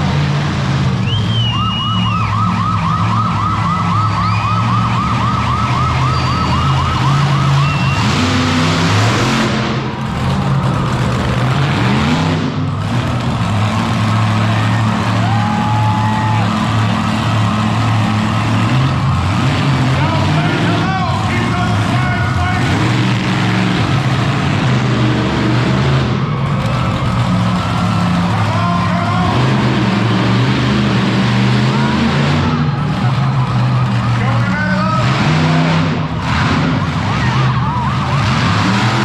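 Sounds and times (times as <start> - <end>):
big engines revving: 0.0 - 39.0
siren-like warble: 1.5 - 8.5.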